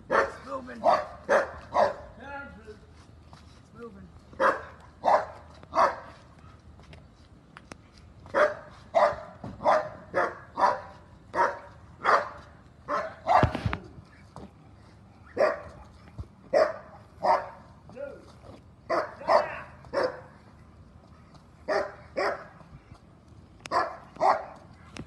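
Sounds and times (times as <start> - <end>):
dog barking: 0.1 - 2.1, 4.4 - 6.2, 8.3 - 13.6, 15.3 - 15.9, 16.5 - 17.6, 18.9 - 20.3, 21.7 - 22.6, 23.7 - 24.6.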